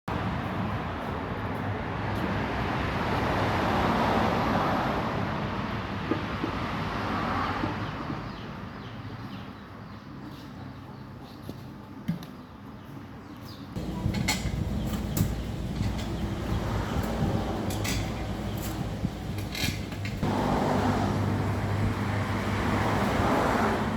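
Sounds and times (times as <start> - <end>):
vehicle passing by: 2.1 - 6.0, 13.8 - 23.9.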